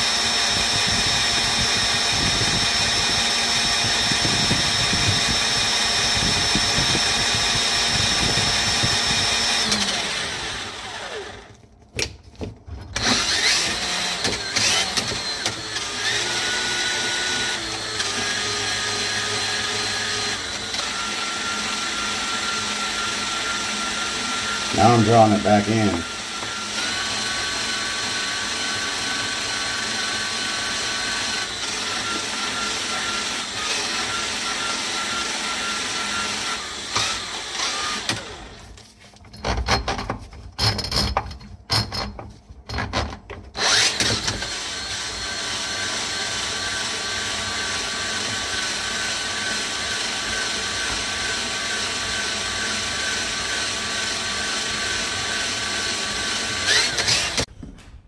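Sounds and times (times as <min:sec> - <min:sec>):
drain snake motor whining: 0:13.0 - 0:38.4, 0:43.6 - 0:51.4, 0:52.0 - 0:57.5.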